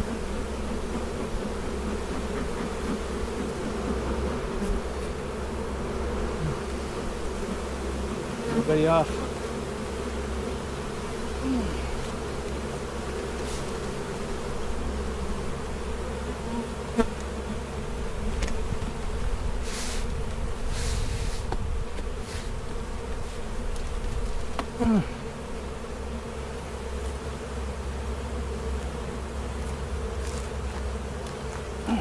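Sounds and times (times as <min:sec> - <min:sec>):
bee colony buzzing: 0:00.0 - 0:32.0
short hisses: 0:20.7 - 0:21.5.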